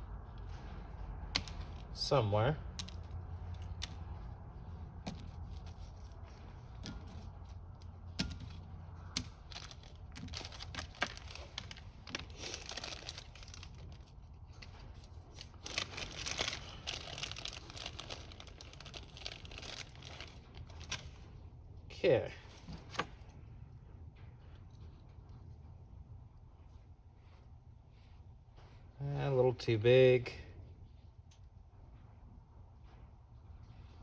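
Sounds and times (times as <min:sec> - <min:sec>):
plastic packaging crinkling: 0:09.2 - 0:21.2.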